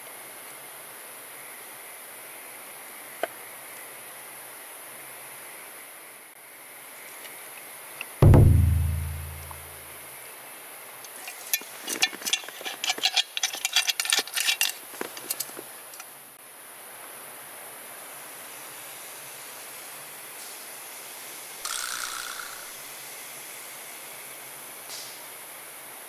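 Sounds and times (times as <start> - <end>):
deep thud with low ringing: 8.2 - 9.8
flowing water hiss: 17.2 - 26.0.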